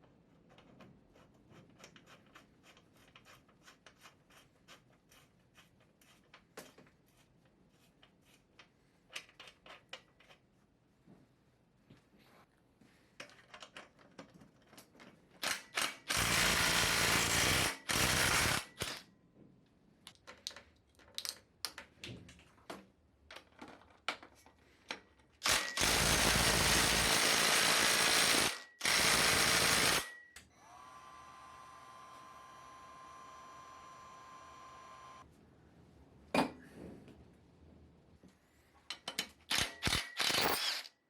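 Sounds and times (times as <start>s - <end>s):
tools clicking and knocking: 8.0s - 10.5s, 20.1s - 25.9s, 38.9s - 40.9s
power tool running: 15.4s - 19.0s, 25.4s - 35.2s, 39.9s - 40.9s.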